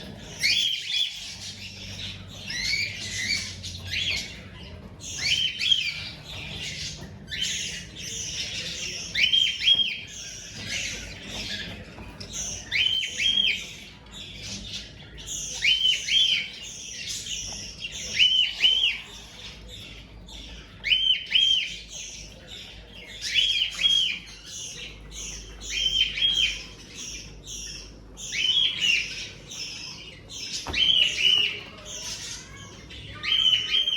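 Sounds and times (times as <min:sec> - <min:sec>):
cockatiels chirping: 0:00.0 - 0:33.9
raspy hissing chatter: 0:00.0 - 0:33.9.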